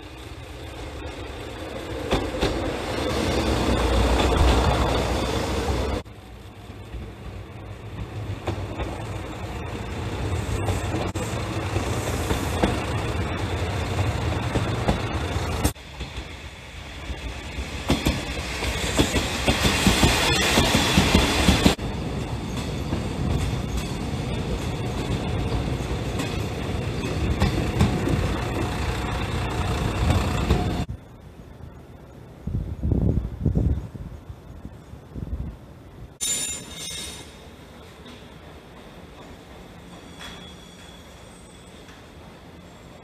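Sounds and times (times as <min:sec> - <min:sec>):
train running past: 0:00.0 - 0:32.9, 0:36.2 - 0:43.0
diesel railcar engine rumble: 0:00.0 - 0:43.0
wheels clickety-clack over rail joints: 0:01.2 - 0:06.1, 0:06.8 - 0:16.4, 0:17.0 - 0:30.9, 0:37.8 - 0:42.7.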